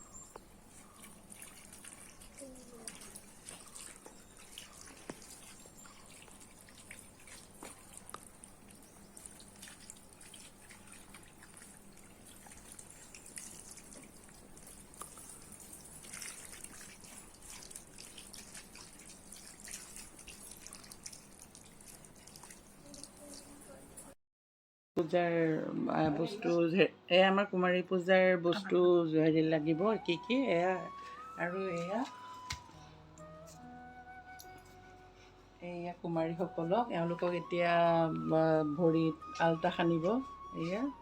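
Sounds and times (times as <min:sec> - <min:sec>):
light clicks and drip-like ticks: 0:00.3 - 0:18.8.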